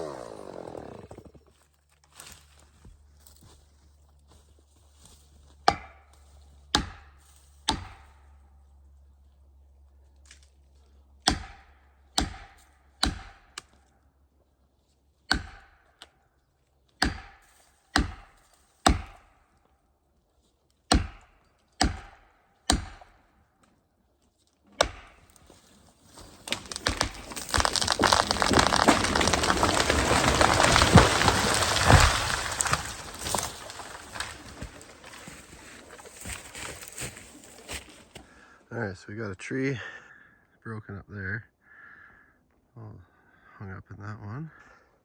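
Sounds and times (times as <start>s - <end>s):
tree cracking and crashing down: 0.0s - 2.6s, 24.9s - 38.4s
hammer striking felling wedge: 5.6s - 8.3s, 11.2s - 13.8s, 15.3s - 16.1s, 17.0s - 19.4s, 20.9s - 23.2s, 24.7s - 25.4s, 26.3s - 37.2s.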